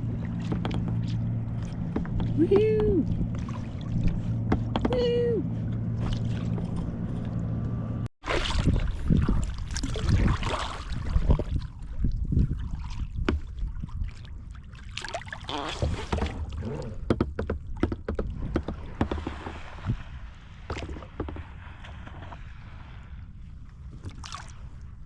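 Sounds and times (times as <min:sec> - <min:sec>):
low rumble: 0:00.0 - 0:14.6
water splashing against kayak: 0:00.0 - 0:25.0.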